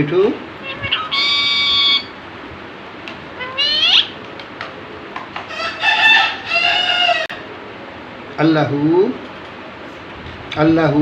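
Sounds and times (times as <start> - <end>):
parrot whistle-like calls: 0.6 - 2.2, 3.4 - 4.2.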